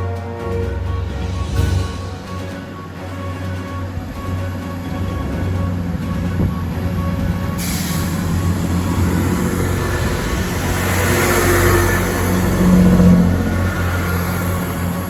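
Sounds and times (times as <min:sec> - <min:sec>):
diesel train engine hum: 0:00.0 - 0:15.0
wheel and rail hiss: 0:06.8 - 0:12.7.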